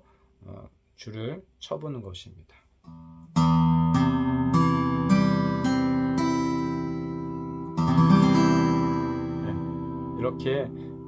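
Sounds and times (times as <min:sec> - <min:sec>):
acoustic guitar chord strummed: 0:02.9 - 0:11.0
acoustic guitar strings plucked: 0:02.9 - 0:11.0.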